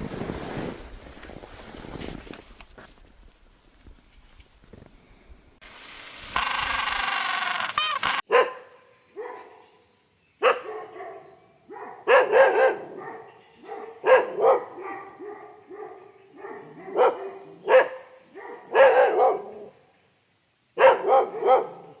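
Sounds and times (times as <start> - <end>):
dog barking: 8.3 - 9.6, 10.4 - 19.8, 20.8 - 22.0.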